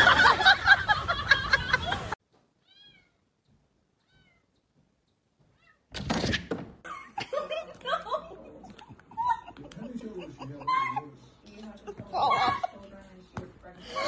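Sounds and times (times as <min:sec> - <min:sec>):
cat meowing: 0:02.6 - 0:03.2, 0:04.0 - 0:04.5.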